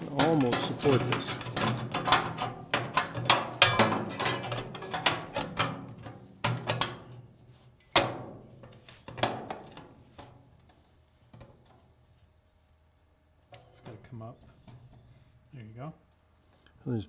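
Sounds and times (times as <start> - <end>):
sheet metal knocking: 0.0 - 5.8.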